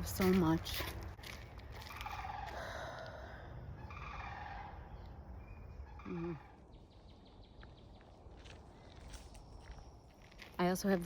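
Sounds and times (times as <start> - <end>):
cranes calling: 1.8 - 6.7.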